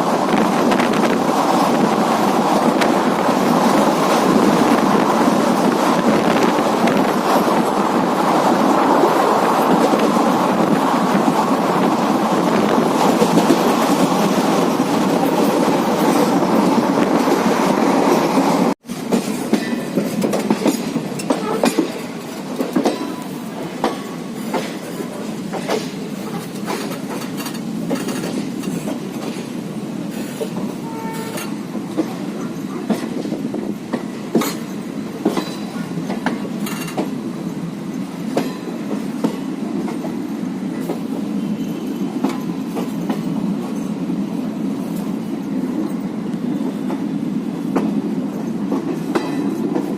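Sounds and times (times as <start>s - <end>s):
train wheels rushing on rail: 0.0s - 49.9s
wheels clicking on track: 30.2s - 37.2s.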